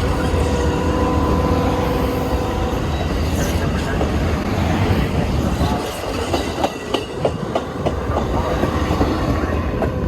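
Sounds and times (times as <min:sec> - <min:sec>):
train cars rumbling on track: 0:00.0 - 0:10.0
wheels clacking over rail joints: 0:02.6 - 0:10.0.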